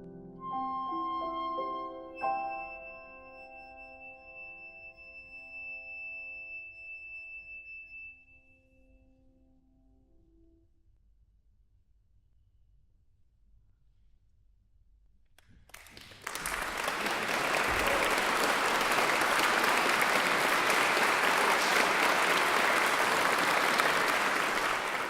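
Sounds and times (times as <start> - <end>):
audience applauding: 15.7 - 25.0.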